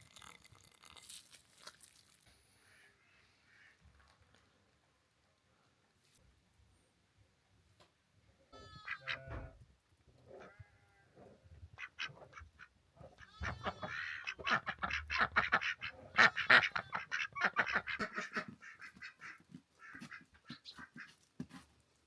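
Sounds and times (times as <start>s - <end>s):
fowl calling: 8.6s - 9.4s, 13.2s - 21.1s.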